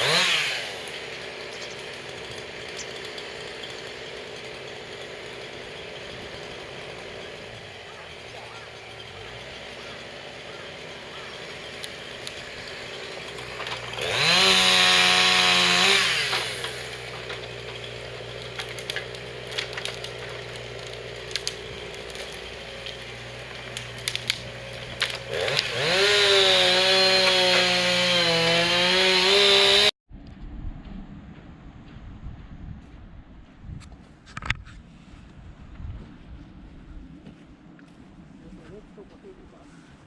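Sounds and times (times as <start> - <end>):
chainsaw idling and revving: 0.0 - 30.0.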